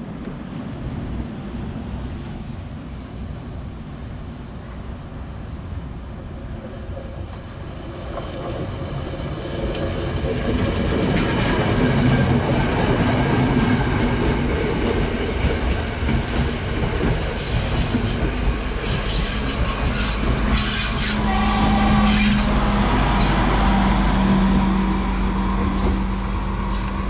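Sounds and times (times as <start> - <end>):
diesel train engine rumble: 3.6 - 27.0
high wheel squeal: 18.8 - 23.5, 25.7 - 27.0.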